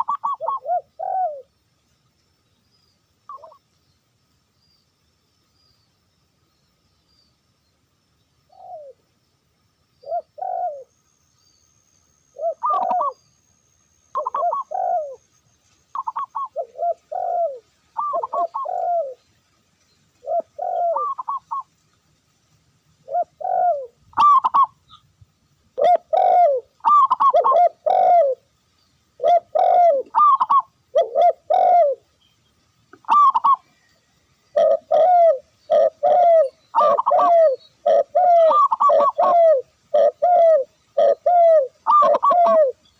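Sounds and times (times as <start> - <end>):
doves cooing: 0.0 - 1.5, 3.3 - 3.6, 8.5 - 9.0, 10.0 - 10.9, 12.4 - 13.2, 14.1 - 15.2, 15.9 - 19.2, 20.2 - 21.7, 23.0 - 25.0, 25.8 - 28.5, 29.2 - 32.1, 32.9 - 42.9.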